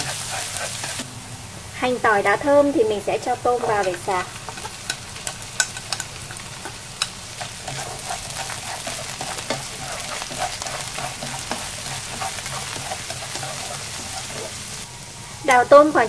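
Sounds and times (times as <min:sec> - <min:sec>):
food sizzling in oil: 0:00.0 - 0:16.0
wooden utensil clicking in pan: 0:03.8 - 0:14.2.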